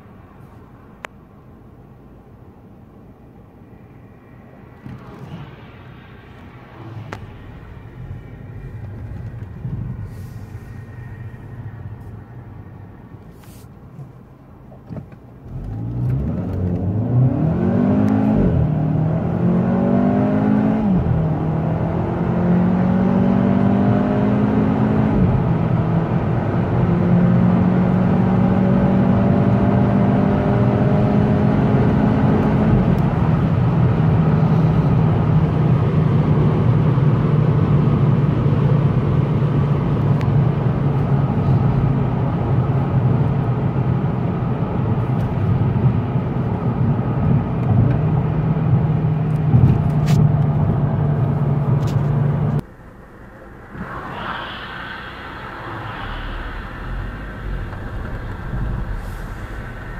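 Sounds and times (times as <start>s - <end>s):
car engine accelerating through gears: 14.7s - 59.9s.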